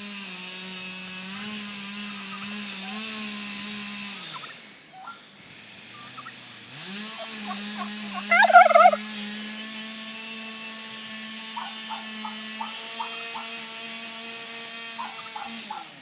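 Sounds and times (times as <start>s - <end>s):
turkey gobbling: 7.2s - 9.1s, 11.6s - 13.6s, 15.0s - 15.9s.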